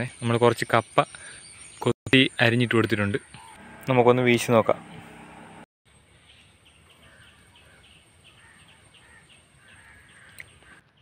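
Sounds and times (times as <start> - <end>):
click: 10.3 - 10.5.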